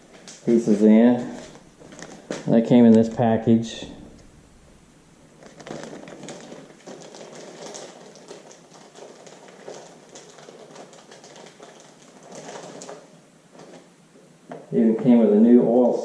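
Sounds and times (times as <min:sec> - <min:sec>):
plastic packaging crinkling: 0:00.0 - 0:03.4, 0:05.2 - 0:13.9.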